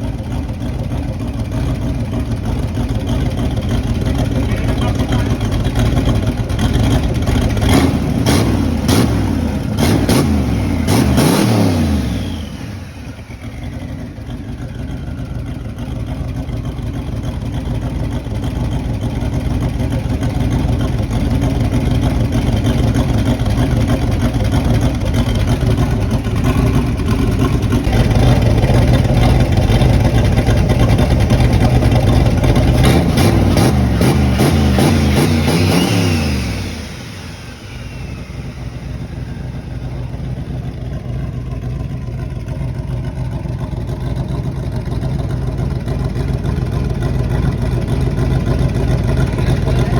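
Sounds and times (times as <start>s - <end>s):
engine idling: 0.0s - 49.9s
engine revving with sharp pops: 6.6s - 12.8s, 32.3s - 37.2s.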